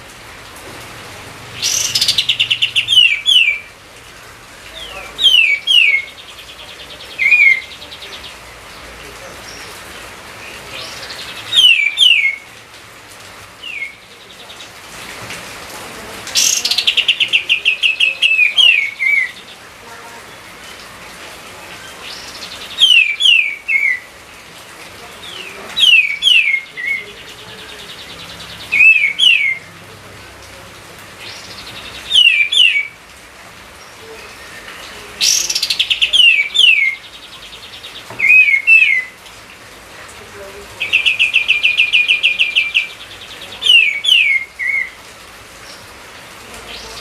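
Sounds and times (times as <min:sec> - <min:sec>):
songbird whistling: 0:11.5 - 0:12.4, 0:22.8 - 0:24.1, 0:31.8 - 0:32.9, 0:38.2 - 0:39.1.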